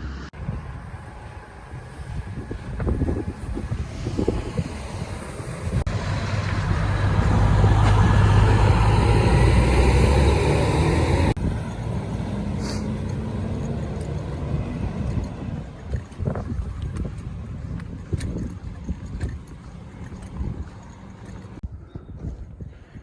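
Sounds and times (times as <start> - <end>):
car driving past: 0.0 - 15.8
steady rumble: 0.0 - 21.7.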